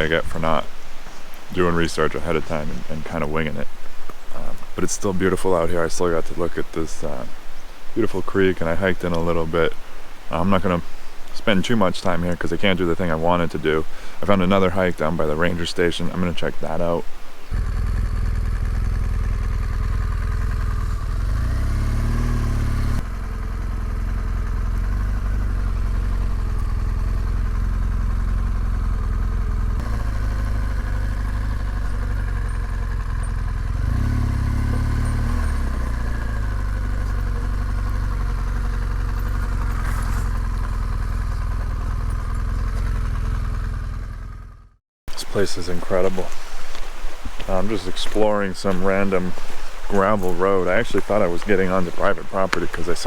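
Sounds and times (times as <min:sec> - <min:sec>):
motorcycle engine droning: 0:11.7 - 0:53.0.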